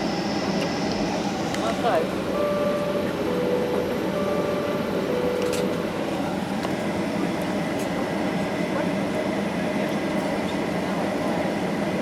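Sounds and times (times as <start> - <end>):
aircraft cabin noise: 0.0 - 12.0.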